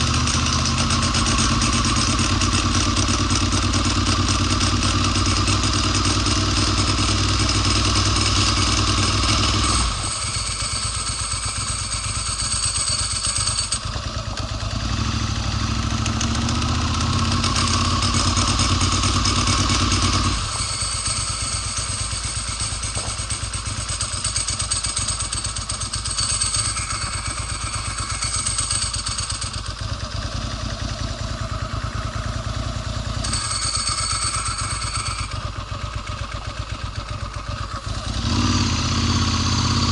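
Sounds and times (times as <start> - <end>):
motorcycle engine sputtering: 0.0 - 39.9.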